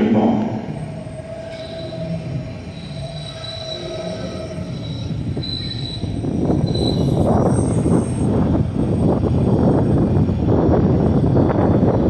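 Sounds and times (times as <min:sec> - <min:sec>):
train rolling rumble: 0:00.0 - 0:12.0
train wheels squealing: 0:00.6 - 0:10.0.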